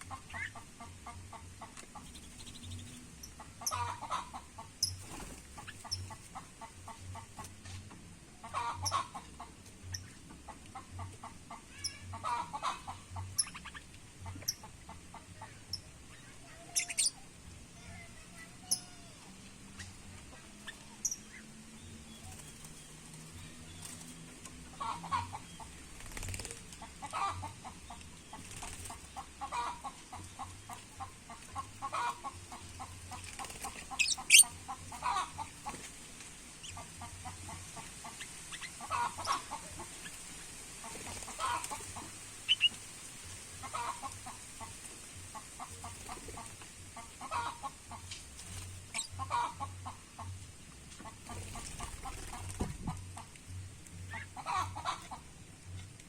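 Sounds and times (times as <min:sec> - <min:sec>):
high bird chirps: 0:42.5 - 0:42.8.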